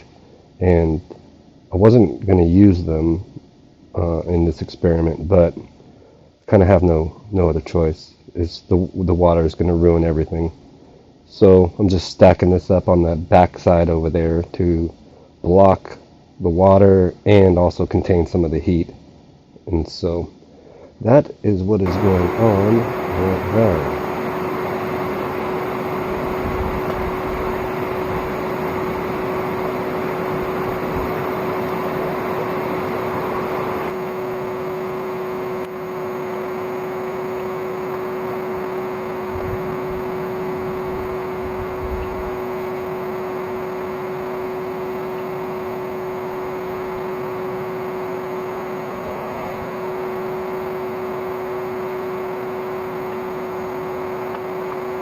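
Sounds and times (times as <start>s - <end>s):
vacuum motor blower whine: 21.8s - 55.0s.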